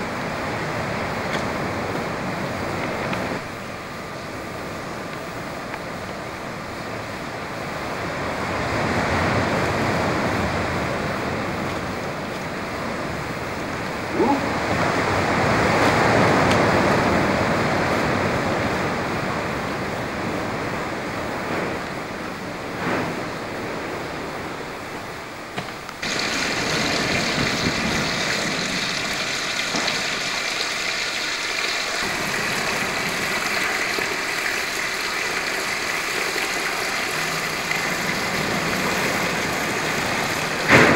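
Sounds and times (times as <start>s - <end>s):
storm wind gusting: 26.0s - 29.7s.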